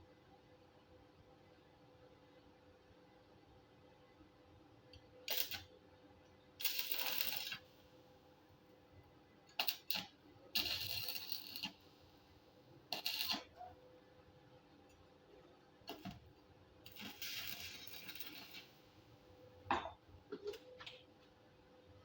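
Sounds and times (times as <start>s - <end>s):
welding arc crackling: 5.2s - 5.7s, 6.6s - 7.7s, 9.5s - 11.8s, 12.9s - 13.6s, 15.9s - 16.2s, 16.9s - 18.8s.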